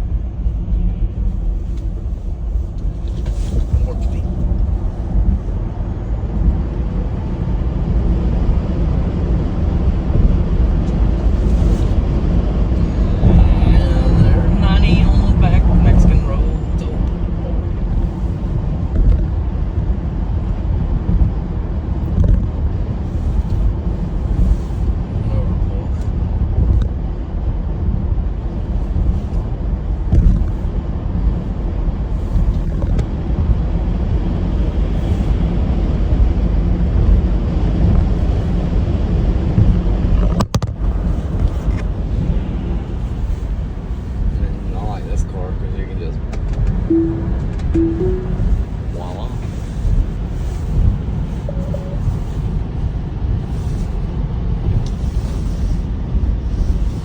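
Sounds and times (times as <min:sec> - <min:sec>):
storm wind buffeting microphone: 0:00.0 - 0:37.9.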